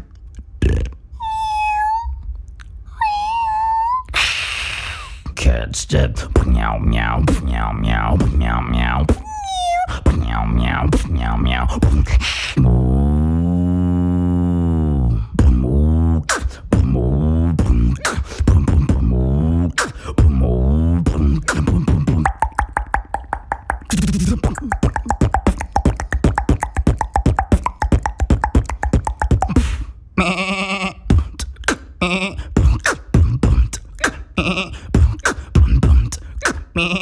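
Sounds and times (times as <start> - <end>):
beatboxing mouth clicks: 0.0 - 1.1, 6.2 - 29.9, 31.0 - 37.0
fast clicking beats: 21.1 - 29.8.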